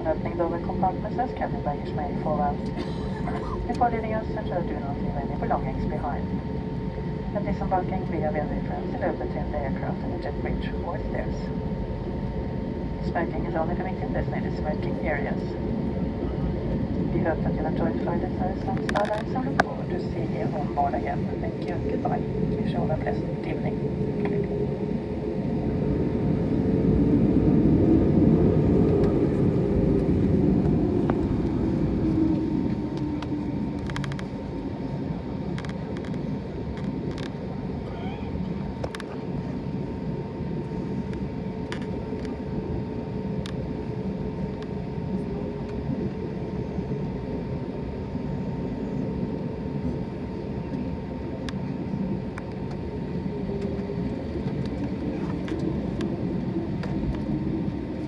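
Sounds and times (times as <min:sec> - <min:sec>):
aircraft engine hum with whine: 0:00.0 - 0:58.0
light clicks: 0:33.0 - 0:34.3.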